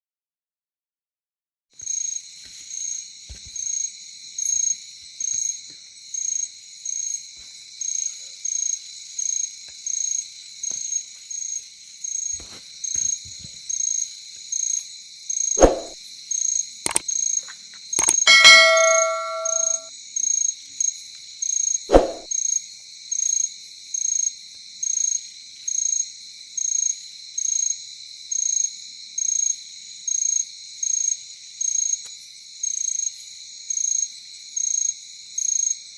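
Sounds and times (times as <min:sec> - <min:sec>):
sharp knocks: 0:18.0 - 0:19.8
ringing ding: 0:18.0 - 0:19.9.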